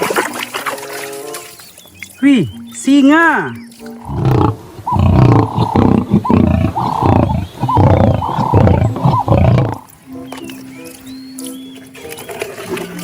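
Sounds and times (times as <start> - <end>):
lion roaring: 4.0 - 9.9.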